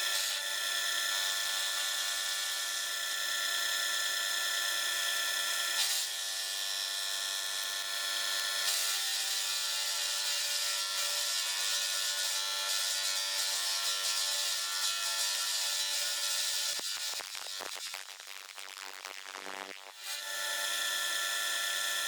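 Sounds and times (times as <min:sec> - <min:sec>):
power tool whining on metal: 0:00.0 - 0:17.6, 0:19.6 - 0:22.0.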